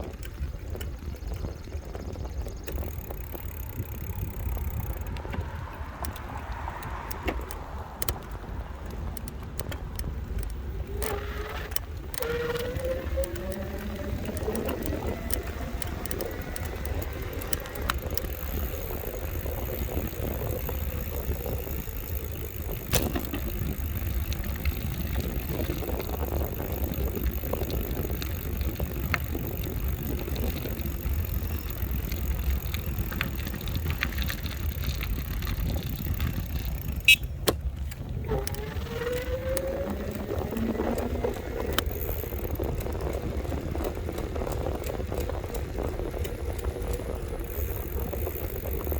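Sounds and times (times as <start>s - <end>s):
road noise: 0.0s - 48.9s
wind on microphone: 0.0s - 48.9s
electric motor whine: 10.7s - 23.5s, 38.2s - 42.5s.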